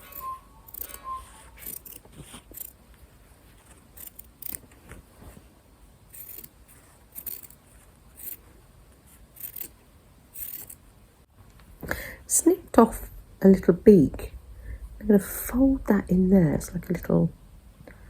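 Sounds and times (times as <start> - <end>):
scissors snipping fabric: 1.6 - 2.8.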